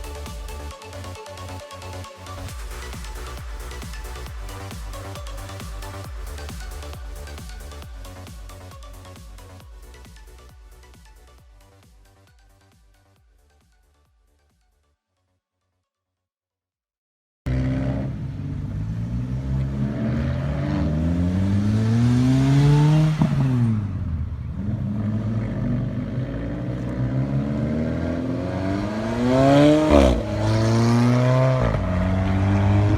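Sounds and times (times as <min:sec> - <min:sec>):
car engines accelerating past: 0:17.5 - 0:32.9.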